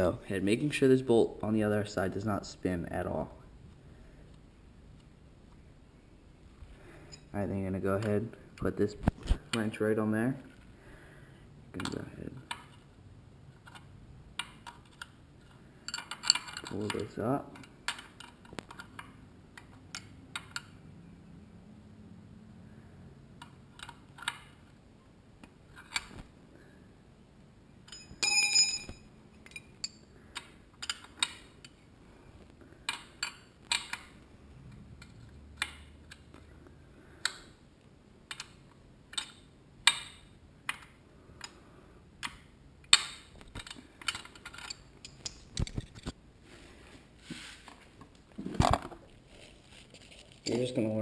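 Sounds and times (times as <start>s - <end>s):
short metallic ring: 27.9s - 30.0s
wrench clicking on metal bolt: 38.3s - 41.6s.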